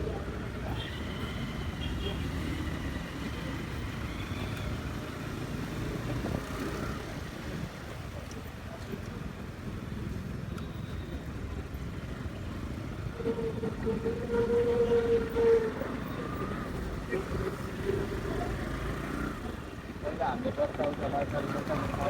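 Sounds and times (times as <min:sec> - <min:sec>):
horn steady note: 0:13.2 - 0:15.7.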